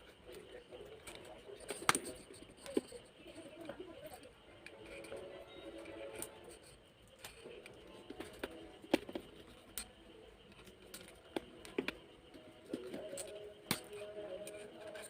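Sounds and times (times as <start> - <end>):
hands handling small parts: 4.1 - 15.0.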